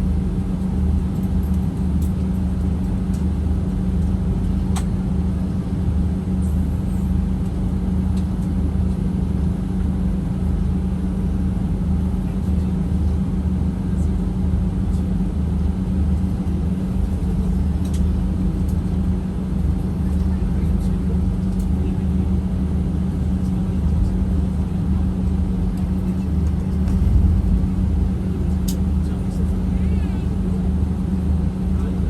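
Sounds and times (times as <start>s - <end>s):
jet engines droning in cabin: 0.0s - 32.0s
faint pulsing throb: 21.9s - 31.9s.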